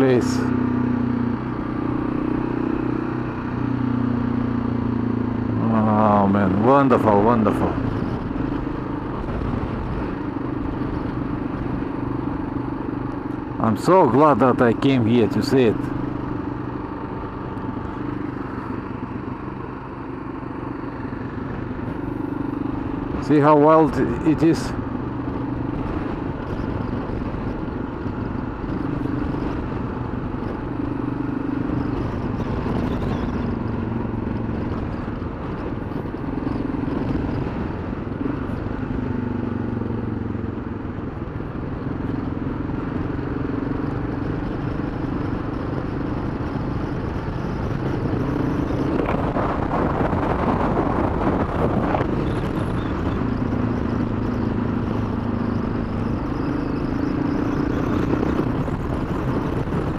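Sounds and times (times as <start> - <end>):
motorcycle engine running: 0.0 - 59.9
wind noise on microphone: 7.5 - 13.5, 24.0 - 59.9.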